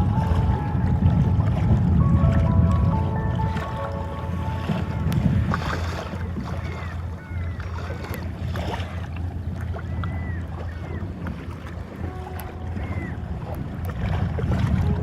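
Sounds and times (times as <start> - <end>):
paddle splashing in water: 0.0 - 15.0
wind on microphone: 0.0 - 15.0
water dripping off paddle: 3.4 - 14.9.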